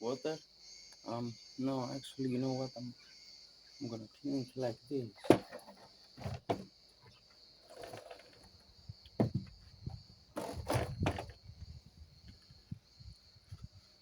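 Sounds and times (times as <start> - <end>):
knocks and scraping: 5.1 - 11.5.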